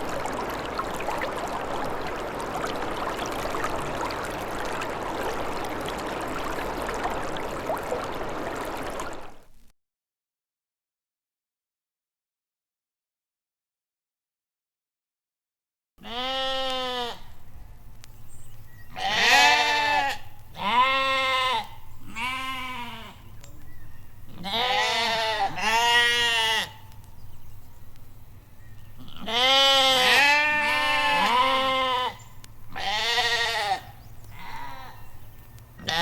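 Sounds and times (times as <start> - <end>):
livestock bleating: 16.0 - 17.3, 18.9 - 23.2, 24.3 - 26.8, 29.0 - 35.0, 35.8 - 36.0.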